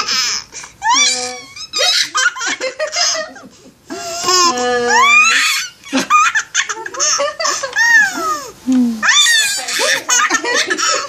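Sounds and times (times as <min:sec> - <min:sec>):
baby laughing: 0:00.0 - 0:11.0.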